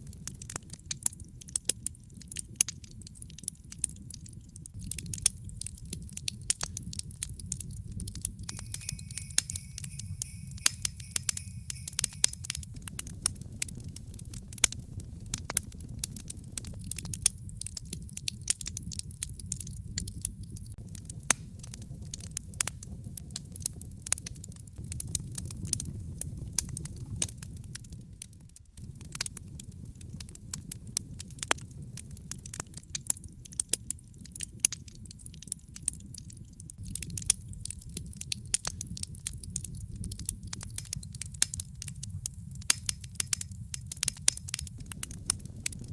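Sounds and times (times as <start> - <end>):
fireplace fire crackling: 0.0 - 45.9
steady low rumble: 4.7 - 23.2, 36.8 - 45.9.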